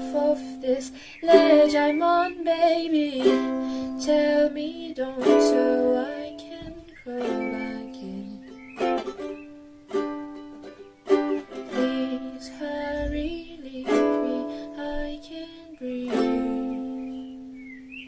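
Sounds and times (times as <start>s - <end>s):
ukulele chords strummed: 0.0s - 18.0s.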